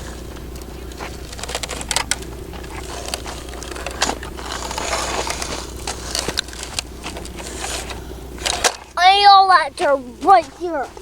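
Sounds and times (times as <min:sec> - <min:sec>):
toy bucket scraping dirt and stones: 0:01.0 - 0:11.0.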